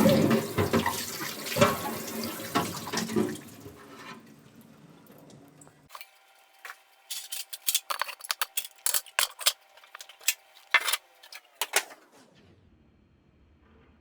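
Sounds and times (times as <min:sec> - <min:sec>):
kitchen items clattering: 0:00.0 - 0:04.0, 0:05.9 - 0:12.1.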